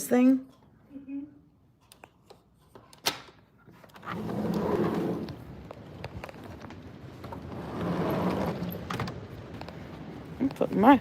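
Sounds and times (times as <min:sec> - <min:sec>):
sliding door rolling open: 0:03.7 - 0:10.4.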